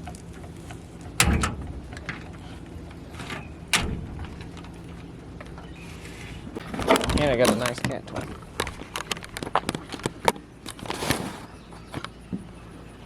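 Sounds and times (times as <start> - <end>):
loud thuds: 3.2 - 5.7.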